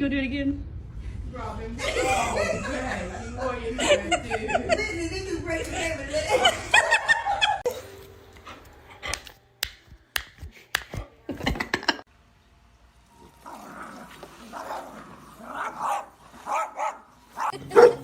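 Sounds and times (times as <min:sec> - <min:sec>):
dog noises: 0:14.0 - 0:18.0.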